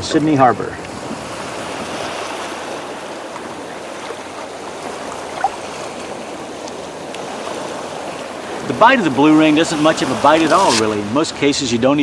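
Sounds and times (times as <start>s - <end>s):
water washing around rocks: 1.3s - 11.7s
brief sharp sound: 9.8s - 11.2s.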